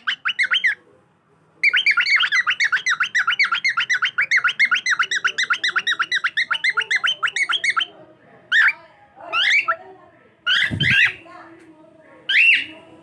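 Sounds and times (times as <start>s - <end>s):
cockatiel chirping: 0.0s - 0.8s, 1.6s - 7.9s, 10.5s - 11.2s, 12.3s - 12.7s.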